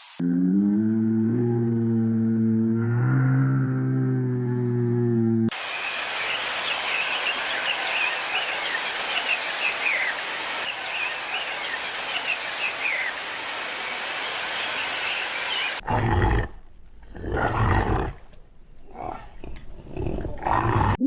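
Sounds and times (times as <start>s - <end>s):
outdoor ambience hiss: 5.5s - 20.8s
small birds chirping: 5.6s - 15.8s.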